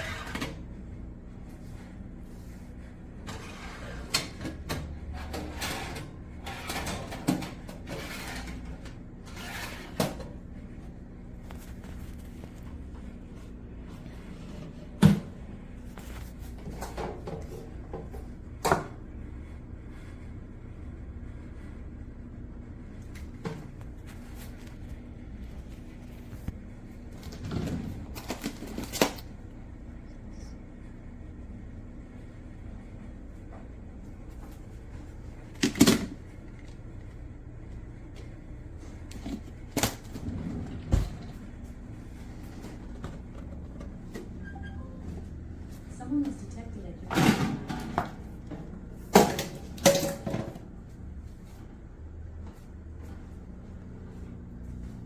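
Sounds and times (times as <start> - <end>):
steady low hum: 0.0 - 55.0
hard objects scraping and rustling: 5.1 - 10.4.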